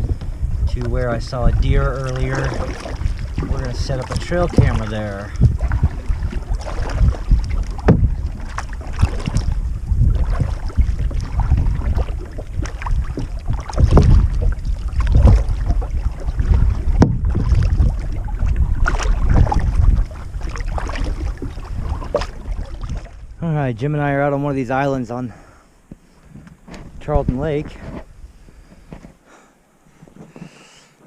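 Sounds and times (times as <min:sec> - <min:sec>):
paddle strokes in water: 0:00.0 - 0:23.3
wind buffeting microphone: 0:00.0 - 0:24.6, 0:26.3 - 0:29.0.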